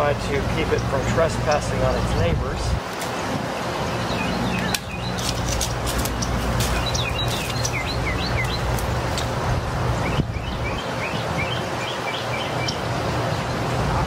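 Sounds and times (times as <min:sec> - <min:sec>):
songbird chirping: 0:03.6 - 0:09.3
hand pruners snipping: 0:04.6 - 0:07.7.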